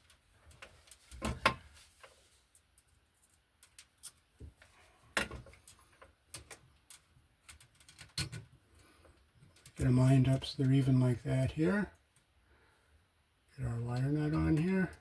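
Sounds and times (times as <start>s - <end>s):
wires and hand tools clicking: 0.0s - 9.9s.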